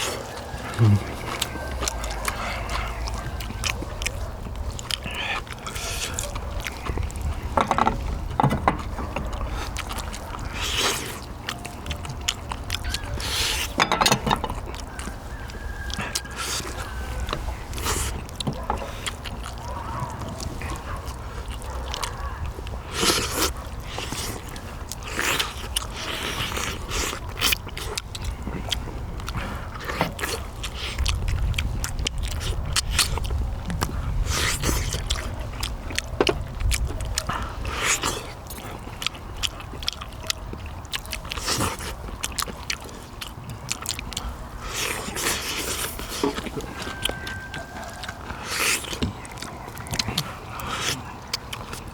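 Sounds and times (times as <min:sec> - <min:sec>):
chewing and biting meat: 0:00.0 - 0:51.9
bones and utensils clicking: 0:04.9 - 0:10.2, 0:11.4 - 0:19.7.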